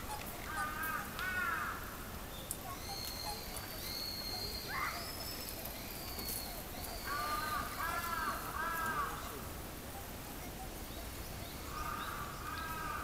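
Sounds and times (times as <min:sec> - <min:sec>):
birds calling high drawn-out notes: 0:02.7 - 0:09.4.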